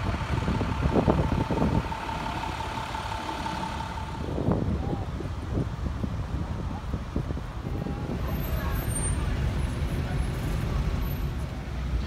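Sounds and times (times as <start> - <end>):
vehicle engines rumbling: 0.0 - 12.0
steady high tone: 0.9 - 4.8.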